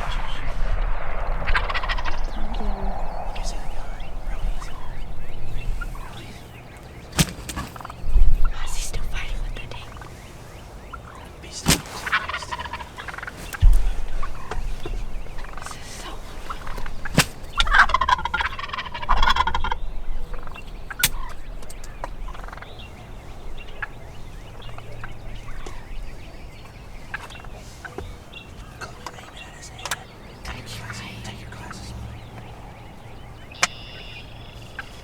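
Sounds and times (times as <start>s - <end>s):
sharp clicks or knocks: 7.2s - 7.9s, 16.8s - 17.5s.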